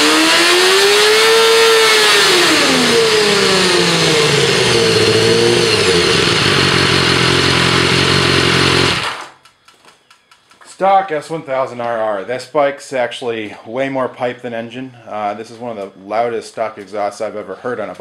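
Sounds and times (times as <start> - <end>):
motorcycle engine revving and idling: 0.0 - 9.4.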